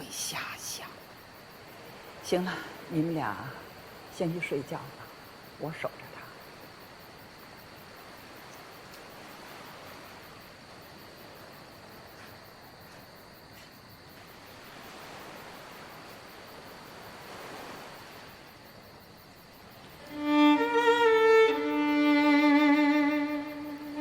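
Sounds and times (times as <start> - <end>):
sea waves washing: 0.0 - 12.1, 14.1 - 24.0
high insect trill: 0.0 - 24.0.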